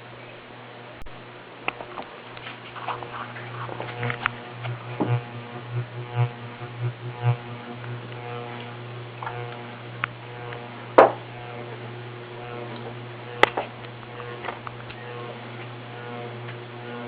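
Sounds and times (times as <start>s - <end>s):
ceiling fan motor humming: 0.0s - 17.0s
sharp clicks: 3.8s - 11.6s, 12.4s - 15.3s.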